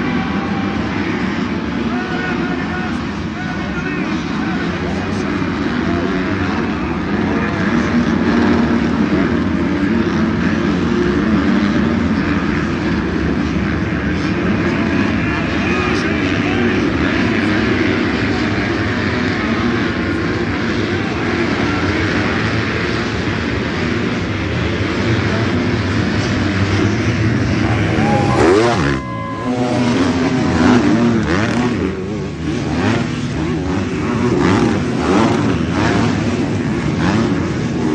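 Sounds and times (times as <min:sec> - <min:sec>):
motocross bike engines: 0:00.0 - 0:37.9
motocross bikes revving: 0:27.2 - 0:37.9.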